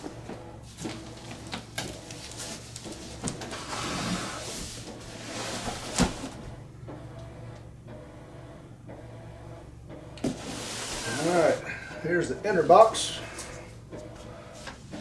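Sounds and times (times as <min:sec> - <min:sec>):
cardboard scraping: 0:00.7 - 0:06.5, 0:10.3 - 0:11.6.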